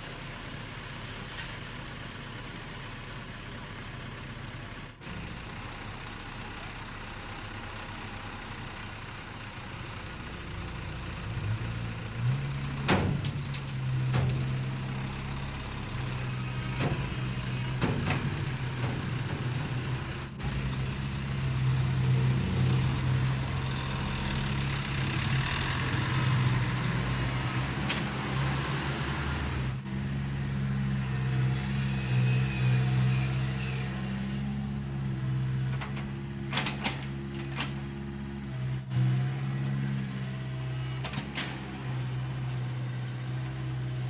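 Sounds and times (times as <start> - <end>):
heavy diesel engine running: 0.0 - 44.0.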